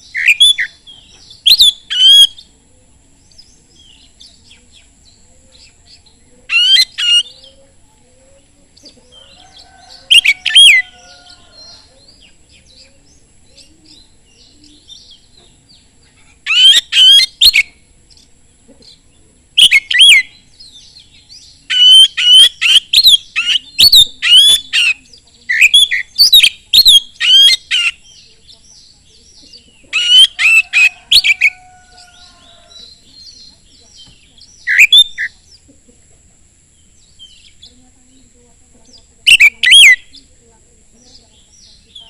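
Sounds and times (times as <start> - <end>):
bird singing whistled phrases: 0.0 - 0.7, 1.3 - 2.5, 19.6 - 20.4, 21.4 - 28.9, 30.0 - 31.6, 32.7 - 35.4, 39.3 - 40.2
faint bird chirps: 0.0 - 42.0.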